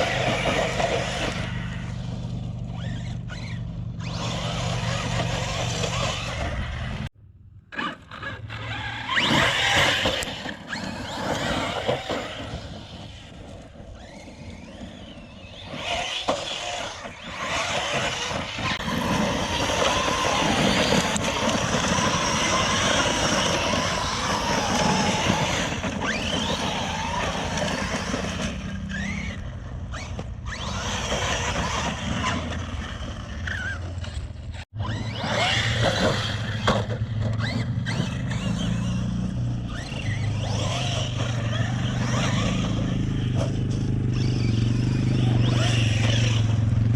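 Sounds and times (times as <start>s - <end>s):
electric motor whining: 0.0s - 7.1s, 7.7s - 46.9s.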